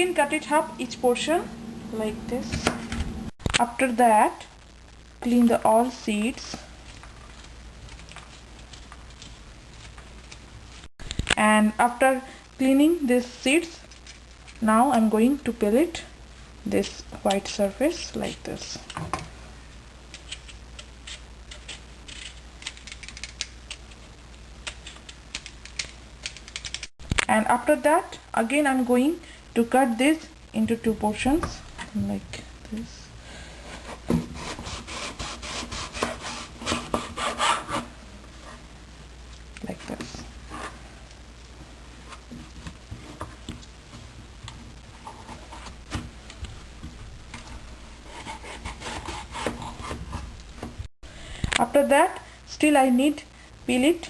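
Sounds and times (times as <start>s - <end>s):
knife scraping papaya: 48.0s - 50.0s.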